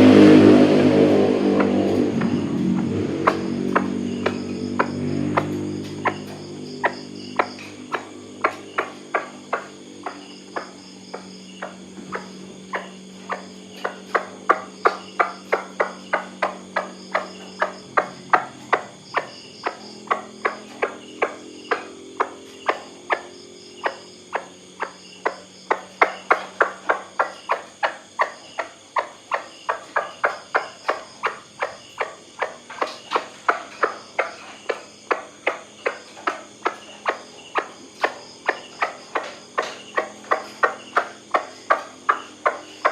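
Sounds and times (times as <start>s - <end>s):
high drone of insects: 0.0s - 42.9s.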